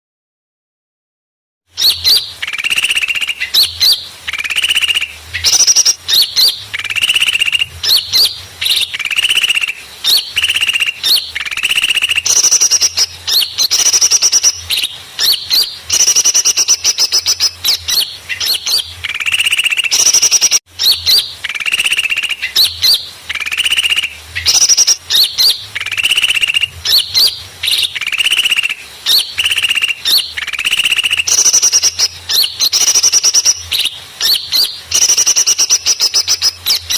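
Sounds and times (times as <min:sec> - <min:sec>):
small birds chirping rapidly: 0:01.8 - 0:36.9.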